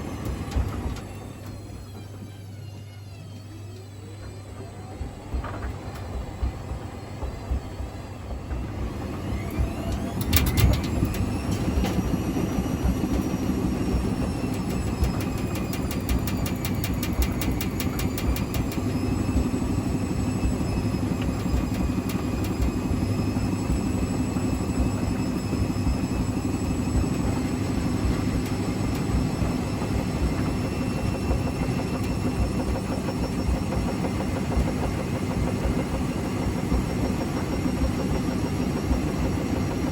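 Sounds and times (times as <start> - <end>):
washing machine spinning: 0.0 - 39.9
rapid clatter of unbalanced load: 8.5 - 19.4.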